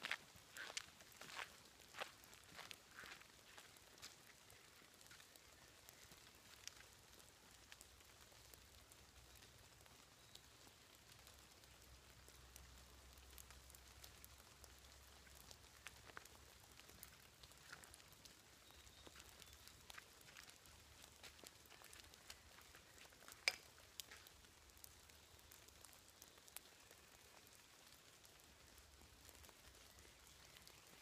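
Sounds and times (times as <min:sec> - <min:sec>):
light rain hiss: 0:00.0 - 0:31.0
raindrops ticking: 0:00.0 - 0:31.0.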